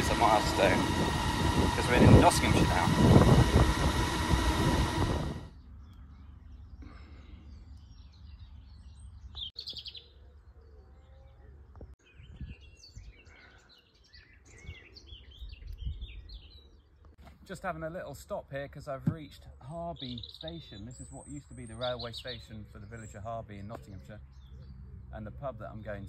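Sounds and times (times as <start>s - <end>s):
loud noise: 0.0s - 5.5s
wild birds singing: 0.0s - 26.0s.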